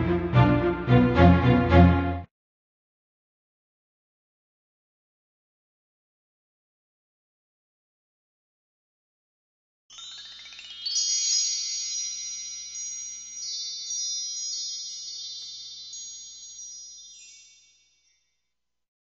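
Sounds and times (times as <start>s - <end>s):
shimmering chimes: 9.9s - 18.6s.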